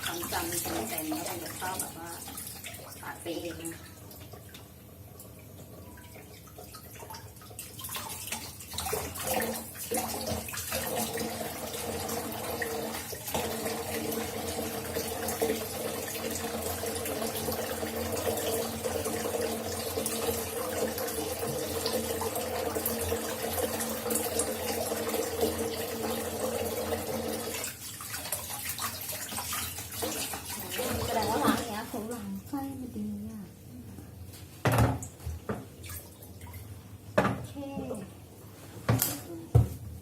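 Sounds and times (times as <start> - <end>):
tap running into sink: 34.6 - 35.7.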